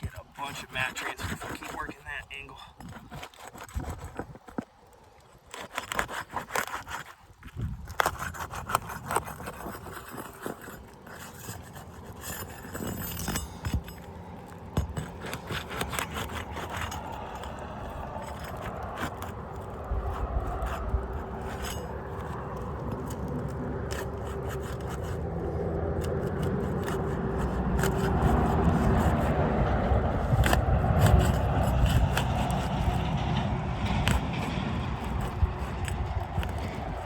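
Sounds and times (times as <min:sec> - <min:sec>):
shingle tabs scraping and crackling: 0:00.0 - 0:37.0
steady rushing noise with low hum: 0:12.2 - 0:37.0.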